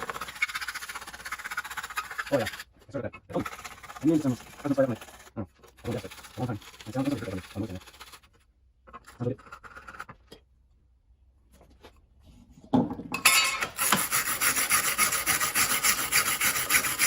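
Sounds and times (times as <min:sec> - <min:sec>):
hand tool scraping metal: 0:00.0 - 0:08.2, 0:13.3 - 0:17.0.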